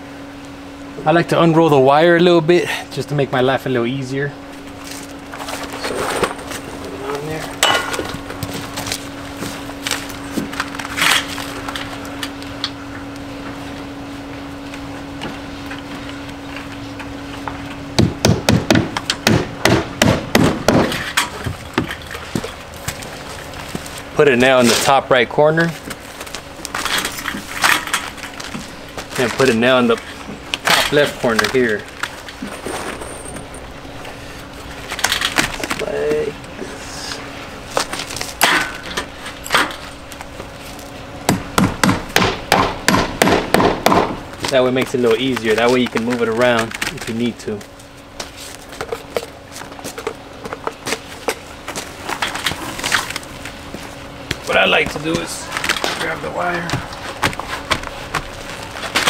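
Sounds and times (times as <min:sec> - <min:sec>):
hammer striking nail: 0:18.0 - 0:21.0, 0:41.3 - 0:44.2.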